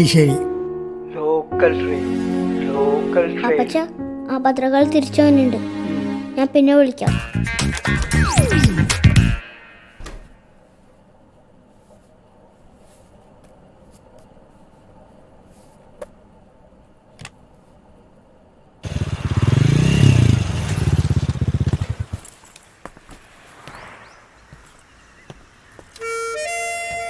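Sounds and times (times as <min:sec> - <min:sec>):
loud pulsing vehicle engine: 0:18.8 - 0:22.1.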